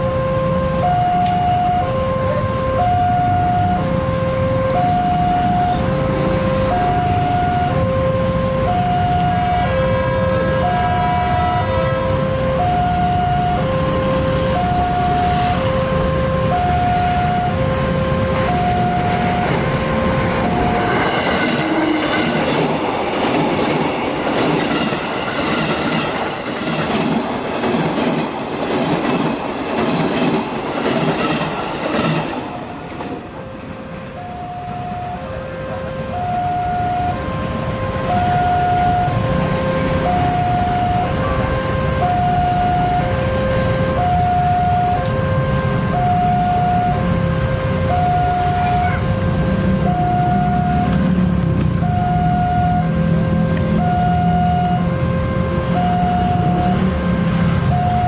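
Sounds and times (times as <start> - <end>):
level crossing alarm two-note tone: 0.0 - 11.4, 12.0 - 22.6, 34.1 - 51.2, 51.8 - 58.0
train wheels clacking on rails: 20.5 - 33.5.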